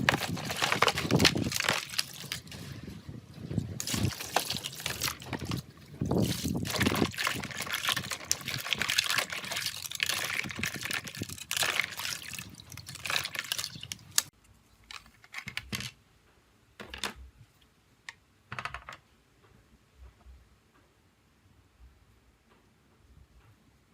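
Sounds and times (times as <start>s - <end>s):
water running and splashing: 3.8s - 14.3s.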